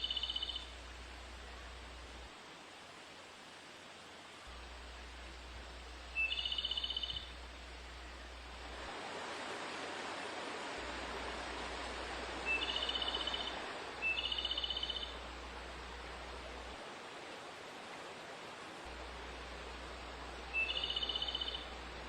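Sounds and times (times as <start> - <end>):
bird call with rapid trill: 0.0 - 0.7, 6.2 - 7.3, 12.5 - 15.2, 20.6 - 21.6.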